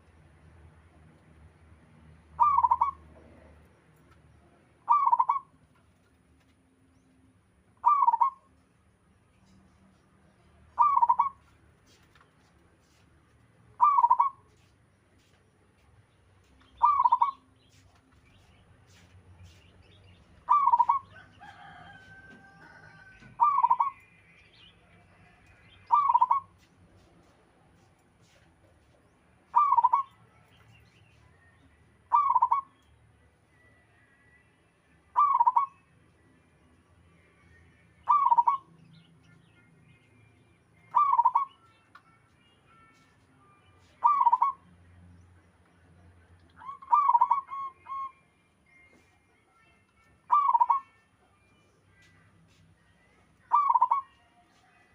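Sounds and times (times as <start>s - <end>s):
drawn-out bird call: 2.4s - 3.1s, 4.8s - 5.6s, 7.8s - 8.5s, 10.8s - 11.6s, 13.8s - 14.5s, 16.7s - 17.6s, 20.4s - 24.2s, 25.5s - 26.5s, 29.5s - 30.2s, 32.1s - 32.8s, 35.2s - 35.8s, 38.1s - 38.7s, 44.0s - 44.6s, 50.3s - 50.9s, 53.5s - 54.2s
dove cooing: 2.4s - 3.4s, 4.9s - 5.5s, 7.8s - 8.4s, 10.8s - 11.4s, 13.8s - 14.4s, 16.8s - 17.4s, 20.5s - 21.7s, 22.6s - 24.0s, 25.9s - 26.5s, 29.5s - 30.1s, 32.1s - 32.7s, 35.2s - 35.7s, 38.1s - 38.6s, 40.9s - 41.5s, 44.0s - 44.6s, 46.6s - 48.0s, 50.3s - 50.8s, 53.5s - 54.1s.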